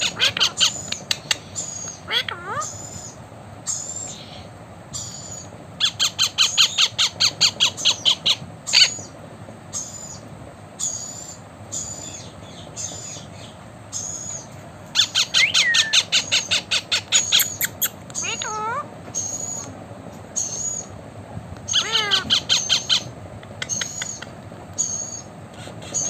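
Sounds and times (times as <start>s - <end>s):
parrot squawking: 0.0s - 9.1s, 10.8s - 19.7s, 21.7s - 26.0s
high chirps: 15.0s - 18.3s.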